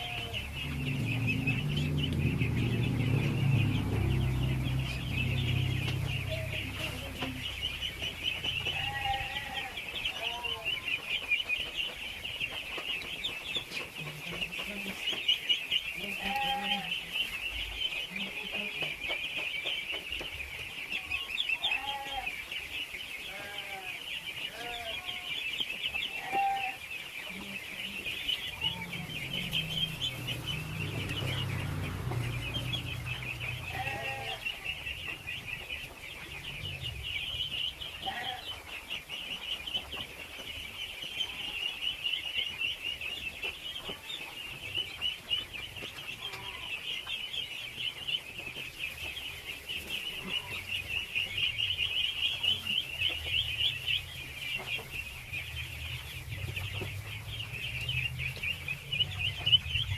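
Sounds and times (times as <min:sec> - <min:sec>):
ducklings peeping: 0:00.0 - 0:59.9
low rumble: 0:00.2 - 0:08.8, 0:28.2 - 0:38.0, 0:52.9 - 0:59.9.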